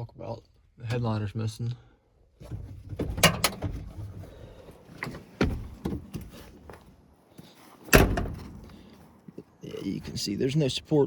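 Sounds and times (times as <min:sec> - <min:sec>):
truck door clunk: 0:02.4 - 0:04.1, 0:07.9 - 0:08.7
truck door clicks: 0:07.9 - 0:08.7.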